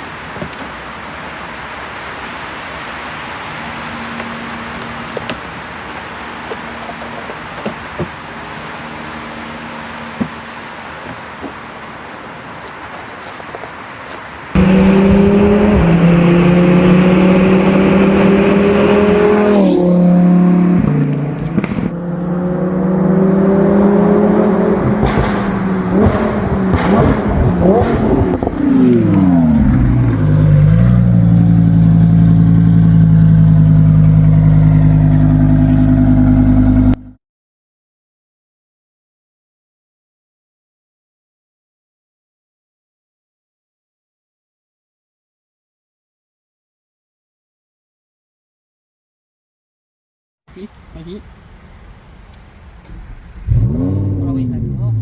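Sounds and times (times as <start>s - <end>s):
sports car engine accelerating: 14.6s - 37.2s, 53.1s - 55.0s.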